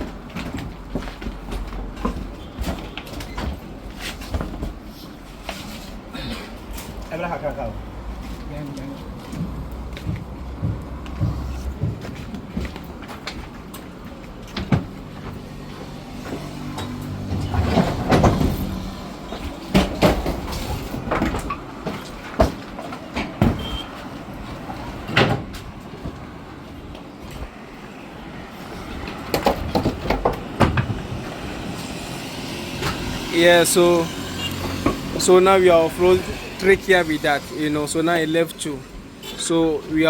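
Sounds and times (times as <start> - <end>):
knocks and rattles: 16.2 - 23.7, 29.0 - 31.6
truck engine drone: 30.8 - 38.3.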